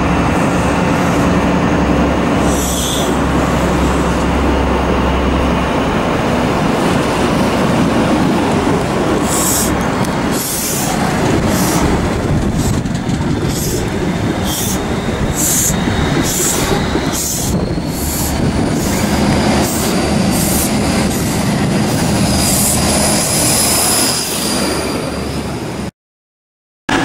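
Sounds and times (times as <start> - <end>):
train wheels rumbling on rail: 0.0 - 25.9
high hissing pulses: 9.1 - 12.8.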